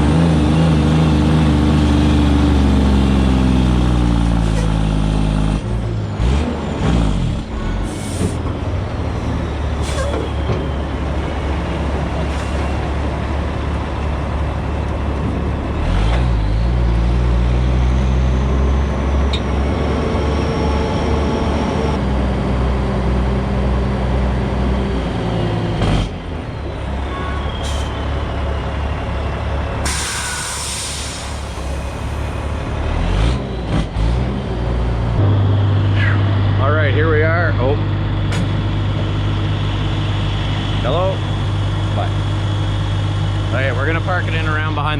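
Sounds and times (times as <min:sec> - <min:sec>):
diesel truck engine under load: 0:00.0 - 0:44.9
air brake hisses: 0:09.8 - 0:10.3, 0:29.8 - 0:32.0.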